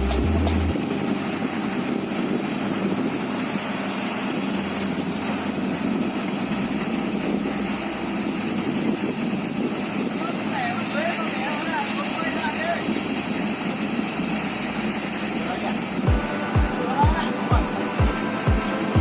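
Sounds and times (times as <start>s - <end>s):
engine droning steadily: 0.0s - 19.0s.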